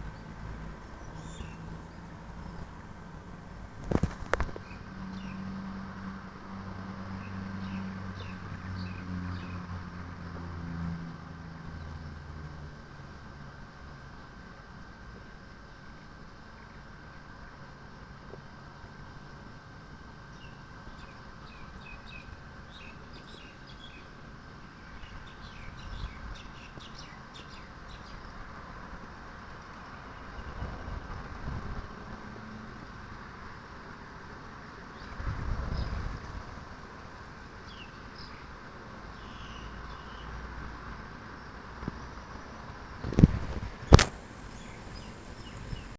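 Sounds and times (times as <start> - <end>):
small birds chirping: 0.0 - 5.4, 43.1 - 45.9
jet engine rumble: 43.0 - 45.9.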